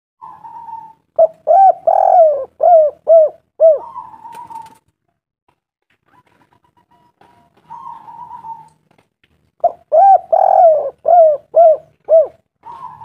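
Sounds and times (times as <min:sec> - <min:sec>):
dove cooing: 0:00.2 - 0:04.8, 0:07.2 - 0:08.9, 0:09.6 - 0:13.0.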